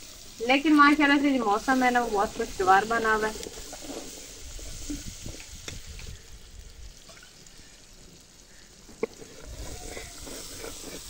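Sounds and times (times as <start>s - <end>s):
food sizzling in a wok: 0.0s - 11.0s
metal ladle scraping a pan: 9.2s - 11.0s.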